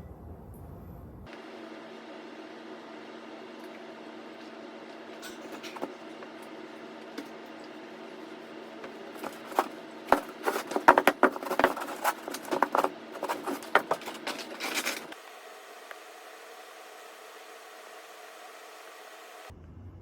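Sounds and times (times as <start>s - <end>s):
mechanical hum: 0.0s - 20.0s
clicks and knocks of handling: 8.8s - 15.2s.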